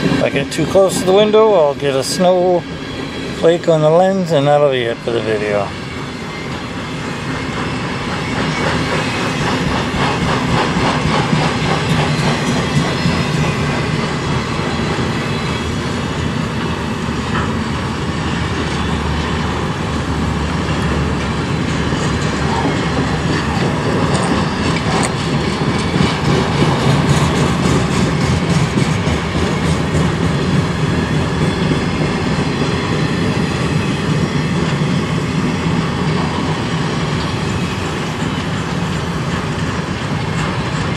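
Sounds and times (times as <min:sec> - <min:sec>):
freight train cars rolling: 0:00.0 - 0:40.9
wheels clicking over rail joints: 0:20.0 - 0:33.4.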